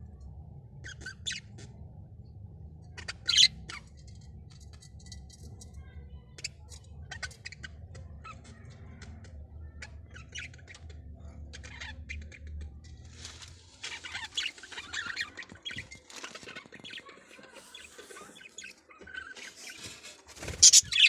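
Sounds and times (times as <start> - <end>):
birds chirping and squawking: 0.8 - 1.5, 3.0 - 3.8, 13.8 - 21.0.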